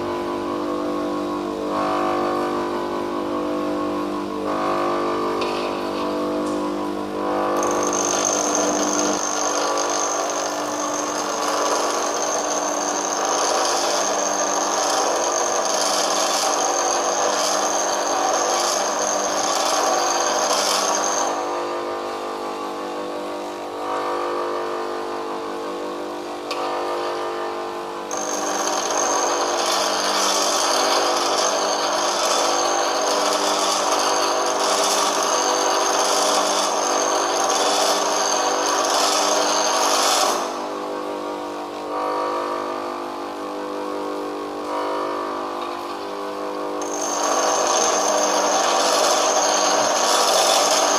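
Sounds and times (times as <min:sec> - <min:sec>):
grinder motor hum: 0:00.0 - 0:50.9
tool bit grinding on wheel: 0:07.6 - 0:21.5, 0:28.1 - 0:40.6, 0:46.8 - 0:50.9.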